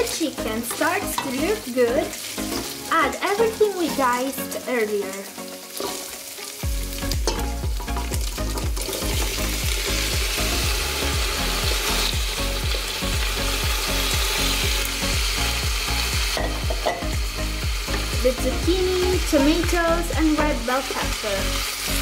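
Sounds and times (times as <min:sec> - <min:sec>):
chicken sizzling in oil: 0:00.0 - 0:22.0
low regular beat: 0:06.6 - 0:19.8.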